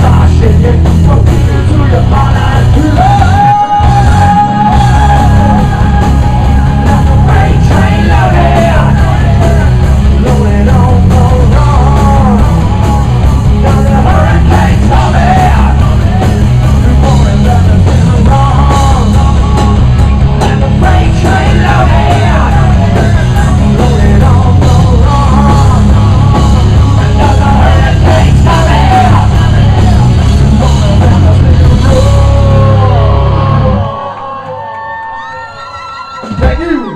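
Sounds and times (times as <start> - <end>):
rock band playing loudly: 0.0 - 34.3.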